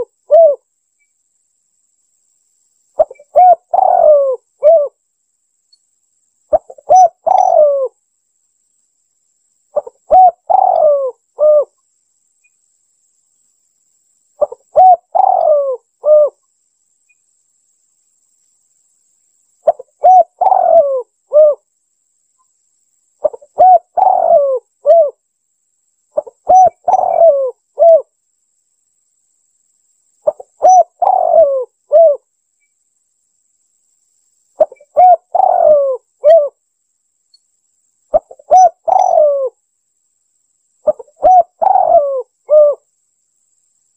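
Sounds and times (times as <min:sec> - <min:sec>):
dove cooing: 0:00.0 - 0:00.7, 0:03.0 - 0:05.0, 0:06.5 - 0:08.0, 0:09.8 - 0:11.8, 0:14.4 - 0:16.4, 0:19.6 - 0:21.6, 0:23.2 - 0:25.2, 0:26.2 - 0:28.1, 0:30.2 - 0:32.2, 0:34.6 - 0:36.6, 0:38.1 - 0:39.6, 0:40.8 - 0:42.8.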